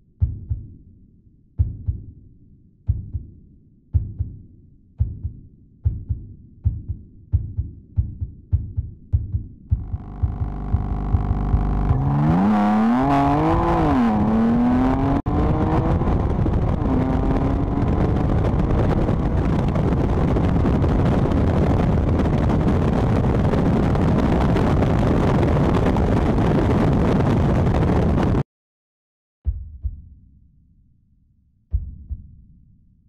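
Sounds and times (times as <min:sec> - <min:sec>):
wind and road rush: 0:09.7 - 0:28.4
car engine revving and accelerating: 0:09.8 - 0:19.5.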